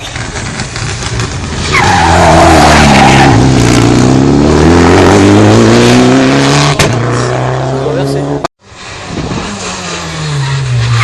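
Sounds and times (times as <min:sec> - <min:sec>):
rally car engine: 0:00.0 - 0:11.0.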